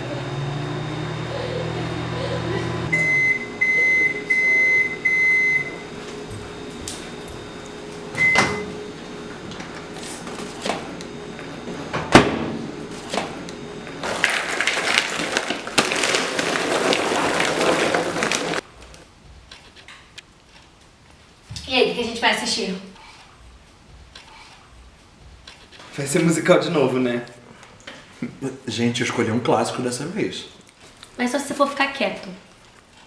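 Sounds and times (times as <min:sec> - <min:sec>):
microwave oven humming: 0:00.0 - 0:19.4
microwave beeps: 0:00.4 - 0:14.0
rustling: 0:14.0 - 0:21.4.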